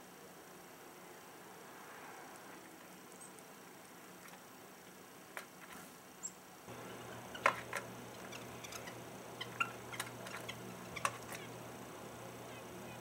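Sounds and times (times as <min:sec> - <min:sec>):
small bird calls: 0:02.9 - 0:03.6, 0:06.2 - 0:13.0
beaks tapping on plastic feeder: 0:06.7 - 0:11.7.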